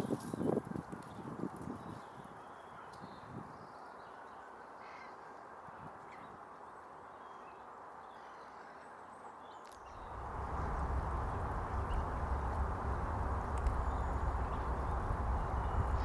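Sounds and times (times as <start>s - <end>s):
faint bird calls: 10.0s - 16.0s
low rumble: 10.0s - 16.0s
outdoor hiss: 10.0s - 16.0s.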